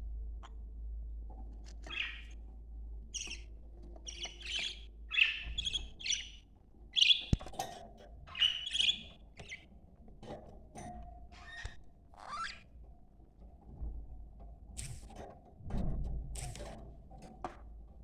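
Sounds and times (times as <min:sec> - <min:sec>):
budgerigars chirping: 0:01.8 - 0:02.4, 0:03.1 - 0:07.4, 0:08.3 - 0:09.6
sharp click: 0:14.8 - 0:15.2.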